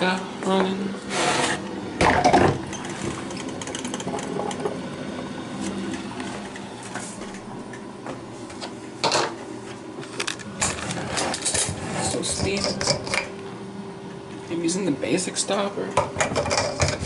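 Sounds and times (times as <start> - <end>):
coffee maker humming and fluttering: 0.0 - 17.0.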